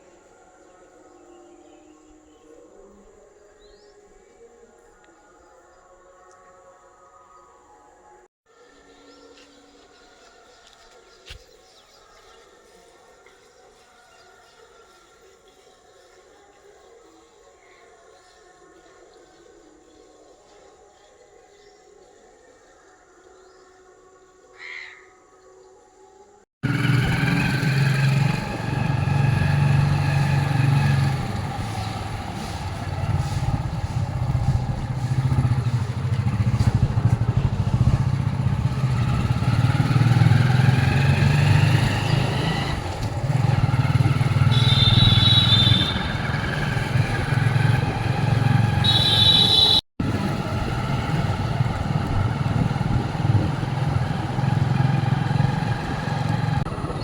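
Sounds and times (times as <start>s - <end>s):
vehicle engine running: 26.6s - 57.0s.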